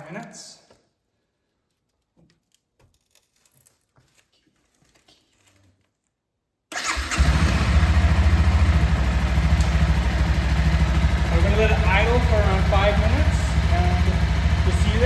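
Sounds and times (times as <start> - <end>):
motorcycle engine starting and idling: 6.7 - 15.0.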